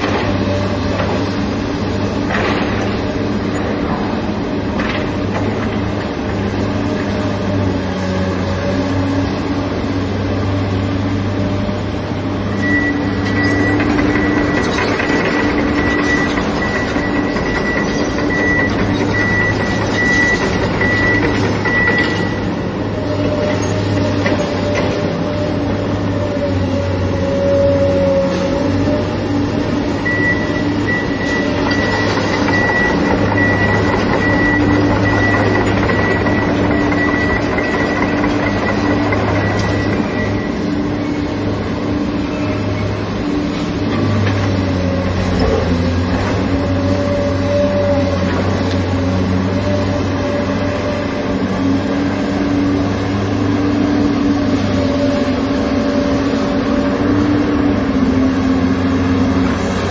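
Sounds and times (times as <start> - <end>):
excavator diesel engine droning: 0.0 - 59.9.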